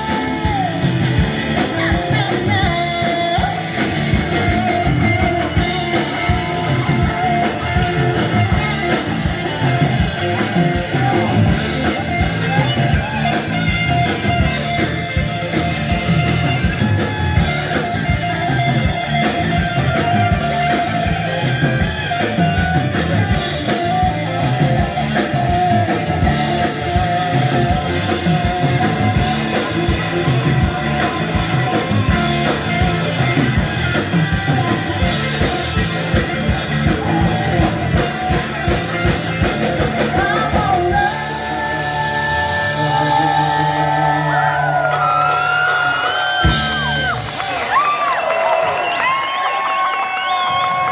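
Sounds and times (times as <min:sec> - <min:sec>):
person singing: 0:00.0 - 0:14.4, 0:22.9 - 0:45.0
bass: 0:00.0 - 0:50.9
drums: 0:00.0 - 0:50.9
electric guitar: 0:00.0 - 0:50.9.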